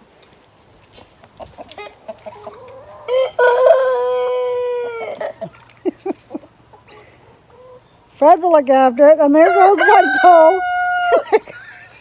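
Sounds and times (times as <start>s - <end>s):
chickens clucking quietly: 1.0s - 8.2s
rooster crowing: 3.1s - 5.3s, 9.5s - 11.4s.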